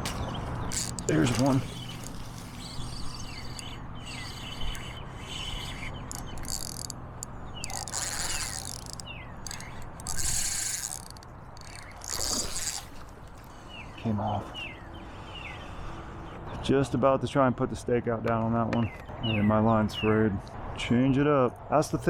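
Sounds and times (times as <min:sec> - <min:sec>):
birds chirping: 0:00.0 - 0:16.6.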